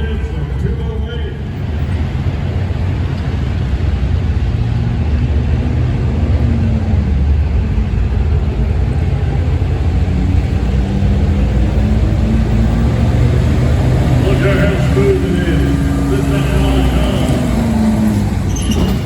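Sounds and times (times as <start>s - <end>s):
pickup engine running under load: 0.0s - 19.0s.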